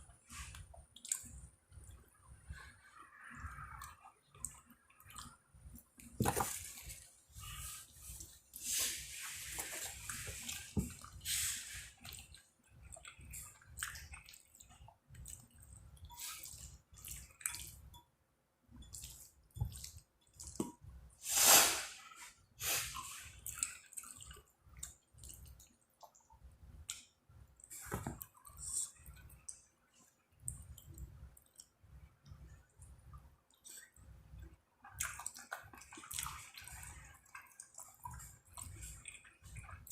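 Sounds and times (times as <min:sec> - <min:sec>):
wet chewing and slurping: 0:00.2 - 0:17.9, 0:18.8 - 0:20.8, 0:22.6 - 0:26.3, 0:34.8 - 0:39.9.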